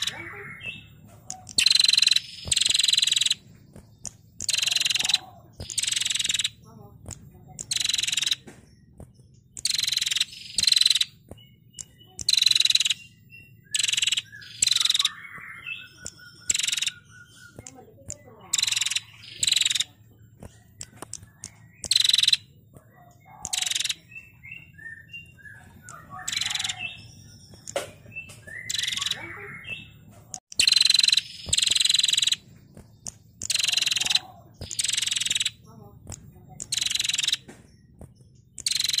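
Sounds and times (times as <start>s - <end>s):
bird buzzing trill calls: 0.0s - 22.5s, 23.2s - 24.6s, 25.8s - 29.9s, 30.5s - 37.5s, 38.1s - 39.0s.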